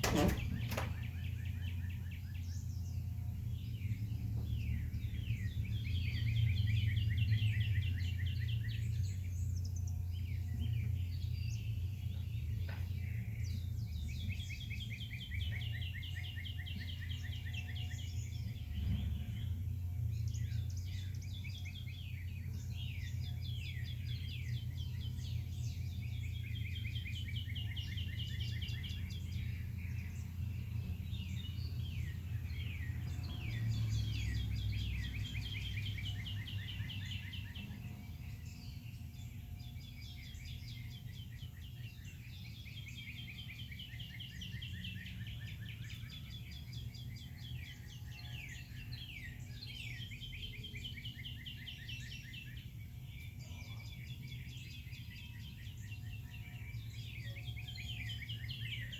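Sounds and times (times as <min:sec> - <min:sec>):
steady low rumble: 0:00.0 - 0:16.0
songbirds singing and chirping: 0:00.0 - 0:58.9.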